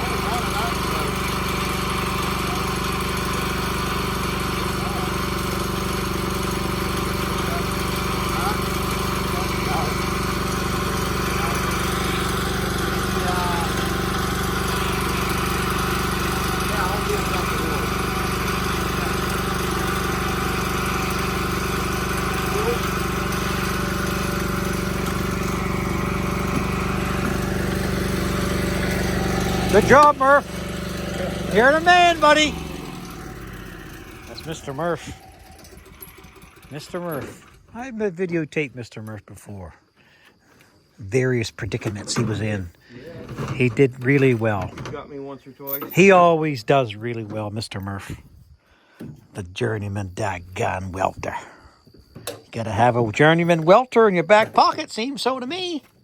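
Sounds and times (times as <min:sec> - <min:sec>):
engine-driven welder running: 0:00.0 - 0:38.0.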